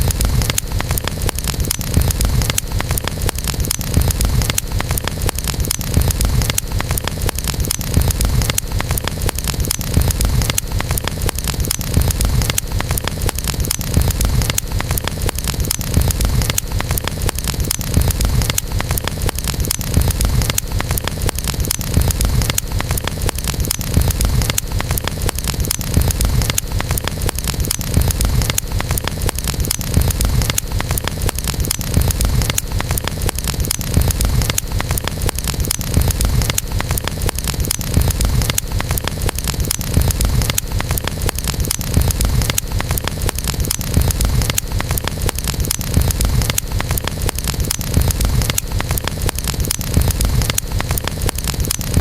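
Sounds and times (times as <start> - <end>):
burning wood crackling and popping: 0.0 - 52.0.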